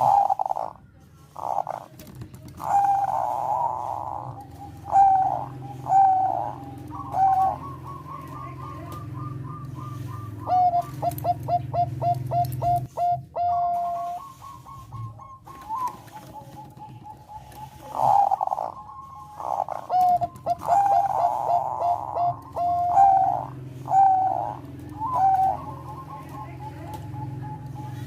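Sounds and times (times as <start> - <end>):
doves cooing: 0.0 - 28.0.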